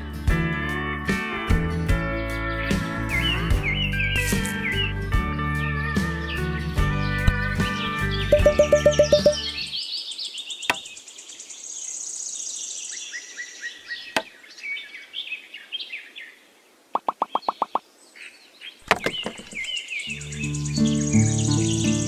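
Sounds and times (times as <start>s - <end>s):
small birds chirping: 7.9s - 22.0s
quick run of taps: 8.4s - 9.4s, 18.9s - 19.7s
sharp knocks: 18.9s - 19.7s.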